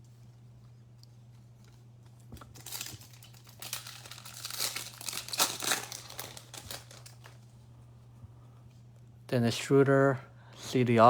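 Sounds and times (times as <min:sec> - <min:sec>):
low electrical hum: 0:00.0 - 0:11.0
wrapper crinkling: 0:02.3 - 0:07.5.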